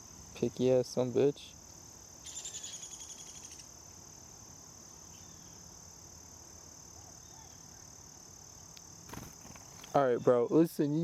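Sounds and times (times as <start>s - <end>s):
buzzy insect trill: 0.0s - 11.0s
crickets chorus: 0.0s - 11.0s
faint chirps: 1.7s - 4.2s, 6.5s - 10.7s.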